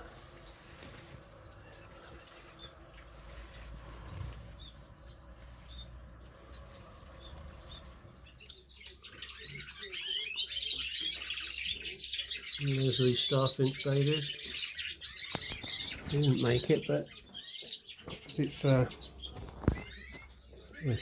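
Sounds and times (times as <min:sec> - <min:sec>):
finches chirping: 0:00.0 - 0:21.0.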